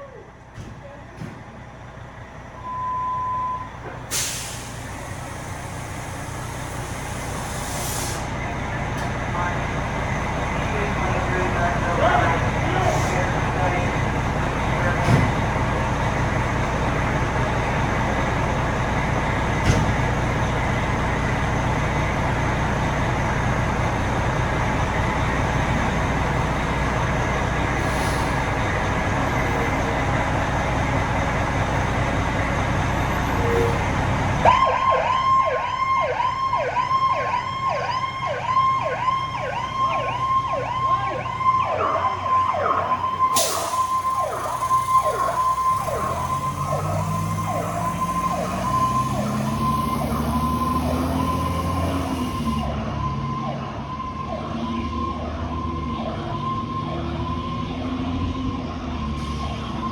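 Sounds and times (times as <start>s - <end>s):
vehicle engine rumble: 0.0s - 59.9s
emergency siren yelping: 26.0s - 59.9s.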